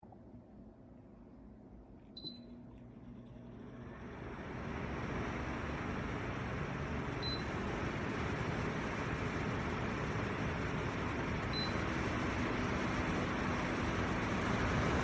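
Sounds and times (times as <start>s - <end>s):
fan rushing air: 0.0s - 15.0s
air cooler beeps: 2.1s - 2.7s, 7.1s - 7.6s, 11.4s - 11.9s.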